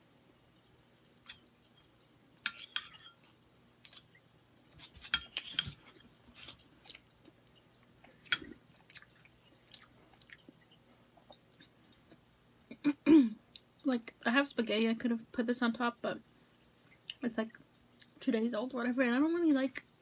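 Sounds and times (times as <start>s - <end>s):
person chewing with mouth smacks: 4.9s - 12.3s.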